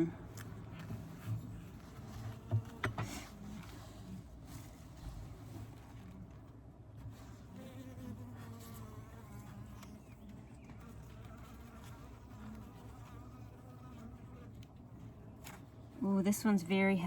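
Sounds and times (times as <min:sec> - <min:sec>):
bees buzzing: 0:07.4 - 0:17.0.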